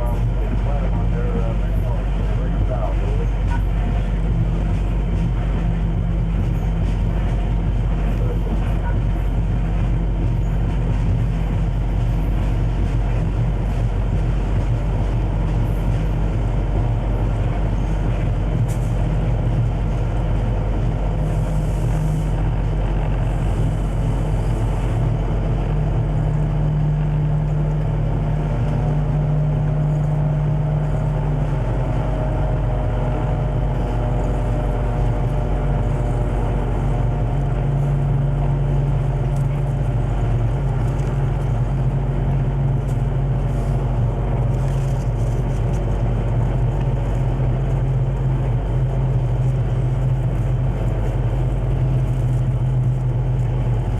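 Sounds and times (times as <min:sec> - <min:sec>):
diesel locomotive engine drone: 0:00.0 - 0:53.9
mechanical rumble: 0:00.0 - 0:53.9.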